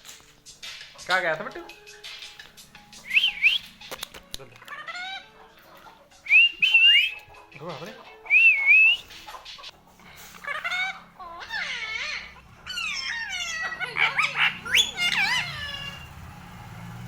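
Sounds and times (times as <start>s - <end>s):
parakeet whistling: 3.0s - 3.8s, 6.2s - 7.3s, 11.6s - 16.2s
parakeet squeaky chattering calls: 4.7s - 5.4s, 10.4s - 16.2s.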